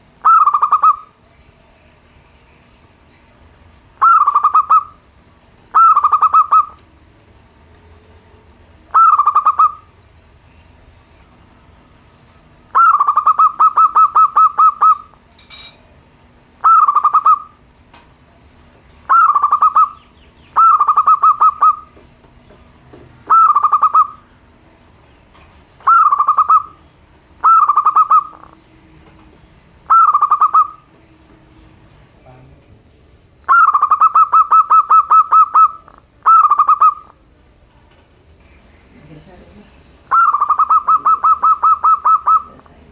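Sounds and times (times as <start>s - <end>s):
dove cooing: 0.2s - 1.2s, 4.0s - 5.0s, 5.7s - 6.8s, 8.9s - 10.0s, 12.7s - 15.2s, 16.6s - 17.7s, 19.1s - 22.1s, 23.2s - 24.4s, 25.8s - 28.6s, 29.9s - 31.0s, 33.5s - 37.3s, 40.1s - 42.9s.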